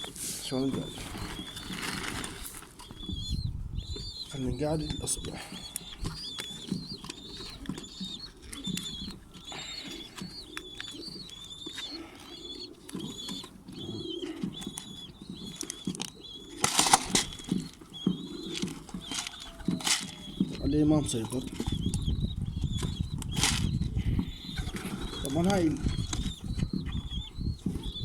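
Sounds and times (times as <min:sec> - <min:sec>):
pigeon chick peeping: 0:00.0 - 0:28.0
pigeons cooing: 0:00.0 - 0:28.0
wings flapping: 0:00.6 - 0:28.0.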